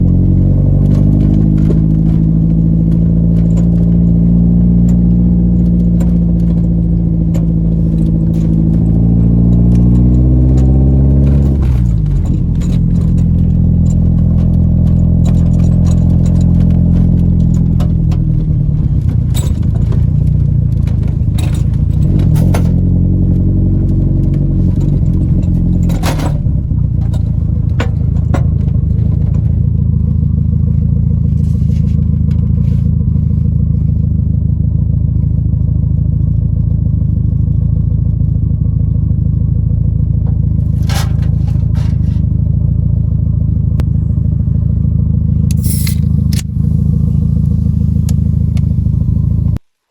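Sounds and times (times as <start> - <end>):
car engine running: 0.0 - 49.6
clicks and scrapes: 40.6 - 42.3, 45.5 - 48.8.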